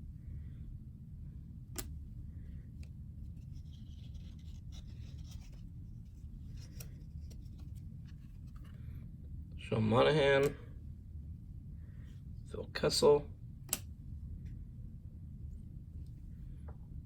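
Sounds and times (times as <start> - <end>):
low steady hum: 0.0 - 17.0
trading cards rubbing and rustling: 2.7 - 9.1.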